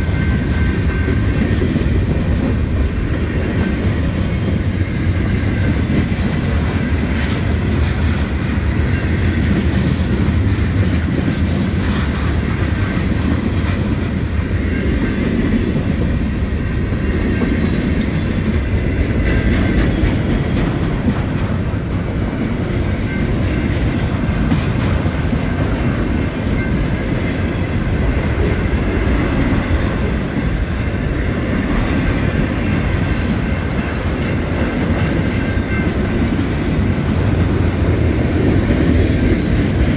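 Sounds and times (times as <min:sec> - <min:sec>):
steel wheels rumbling on rail: 0:00.0 - 0:39.9
high wheel squeal: 0:26.2 - 0:27.6, 0:35.3 - 0:36.7.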